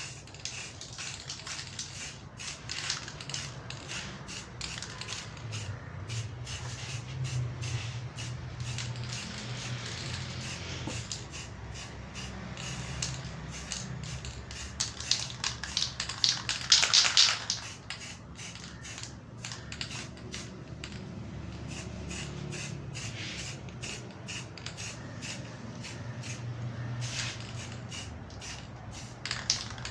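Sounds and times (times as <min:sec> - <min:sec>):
aerosol spray hissing: 0:03.4 - 0:14.8, 0:21.6 - 0:29.2.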